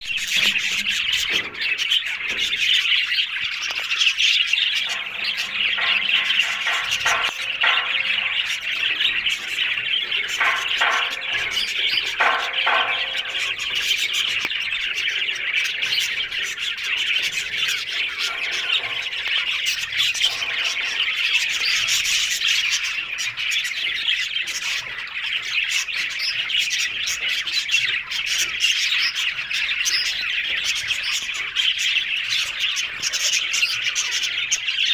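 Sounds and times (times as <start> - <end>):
budgerigars chattering: 0.0 - 34.9.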